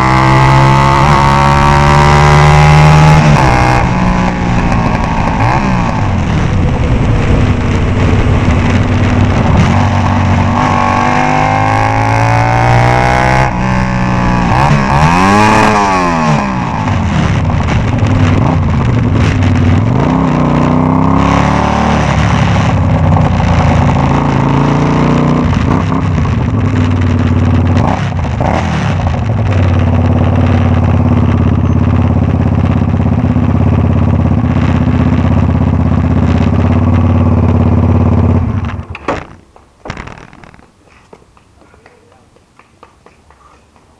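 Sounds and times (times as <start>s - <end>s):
loud motorcycle engine revving: 0.0s - 38.9s.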